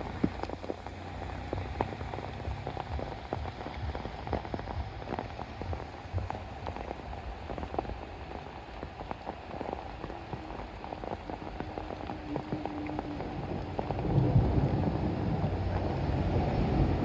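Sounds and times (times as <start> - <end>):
rain drops striking a surface: 0.0 - 17.0.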